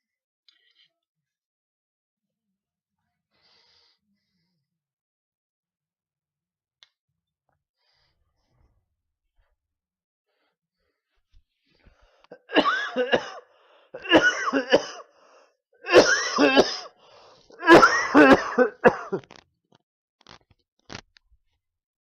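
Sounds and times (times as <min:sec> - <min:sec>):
person coughing: 0:12.4 - 0:15.1, 0:15.8 - 0:17.0, 0:17.6 - 0:19.2.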